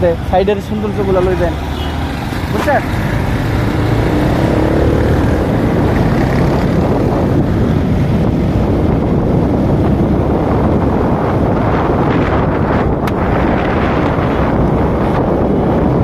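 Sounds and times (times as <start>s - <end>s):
wind buffeting microphone: 0.0s - 16.0s
motorcycle engine running: 2.4s - 11.2s.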